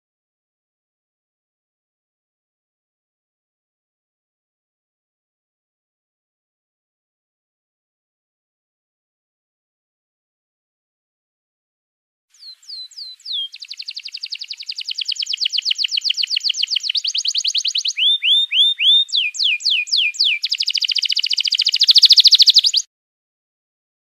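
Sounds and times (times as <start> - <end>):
songbird singing trills: 12.3 - 22.9.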